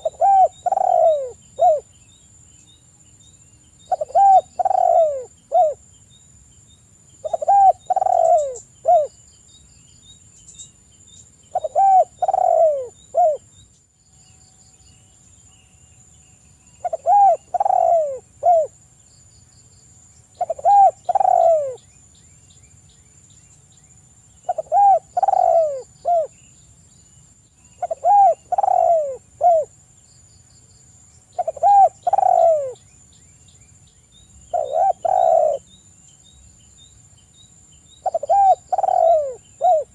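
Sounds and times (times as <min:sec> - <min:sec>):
dove cooing: 0:00.0 - 0:01.9, 0:03.9 - 0:05.8, 0:07.2 - 0:09.1, 0:11.5 - 0:13.4, 0:16.8 - 0:18.8, 0:20.4 - 0:21.8, 0:24.4 - 0:26.4, 0:27.8 - 0:29.7, 0:31.4 - 0:32.8, 0:34.5 - 0:35.7, 0:38.0 - 0:39.9.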